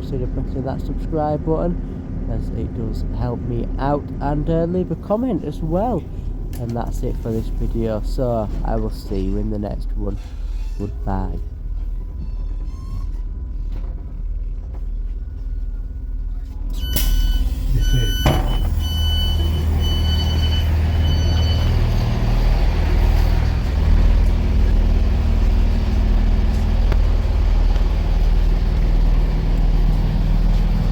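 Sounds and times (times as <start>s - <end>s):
train engine drone: 0.0s - 30.9s
door warning beeps: 16.7s - 22.0s.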